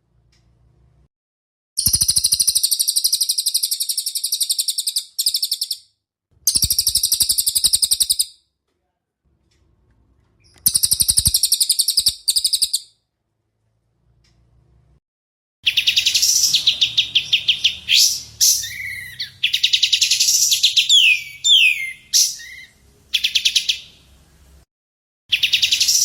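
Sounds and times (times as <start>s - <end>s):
songbird rattling chatter: 6.5s - 8.2s, 10.6s - 12.8s.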